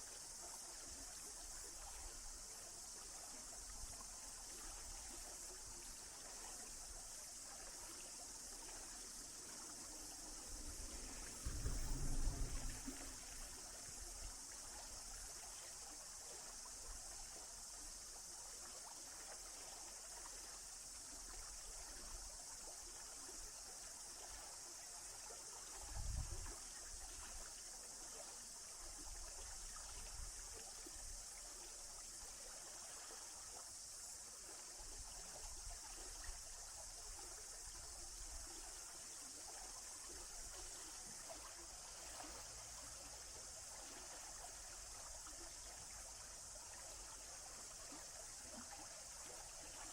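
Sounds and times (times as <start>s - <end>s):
low thump: 10.8s - 13.7s.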